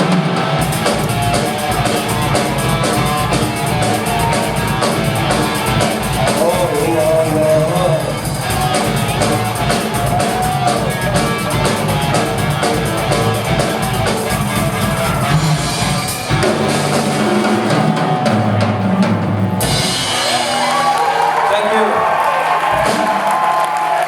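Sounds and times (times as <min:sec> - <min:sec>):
drums driving hard: 0:00.0 - 0:24.0
live rock band playing: 0:00.0 - 0:24.0.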